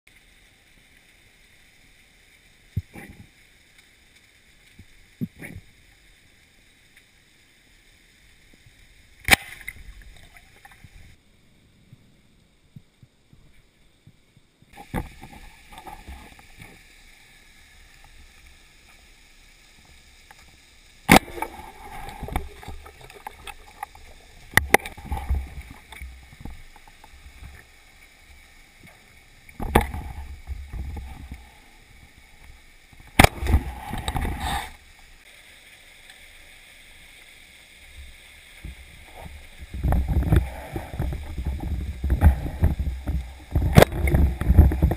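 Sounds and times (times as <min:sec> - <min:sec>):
underwater river hiss: 0:13.5 - 0:44.9
churning water with low rumble: 0:21.0 - 0:35.3, 0:38.0 - 0:44.9.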